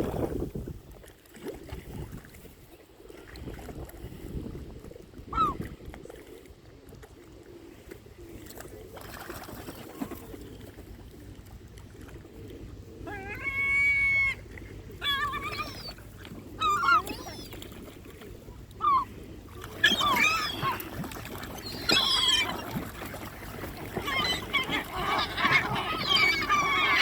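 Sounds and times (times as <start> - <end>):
outdoor background noise: 0.0 - 27.0
large birds calling: 19.7 - 23.2, 23.8 - 27.0.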